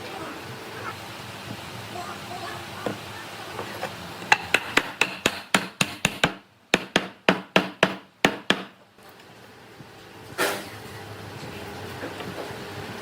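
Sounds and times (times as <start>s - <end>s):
hammer striking wood: 4.3s - 8.8s.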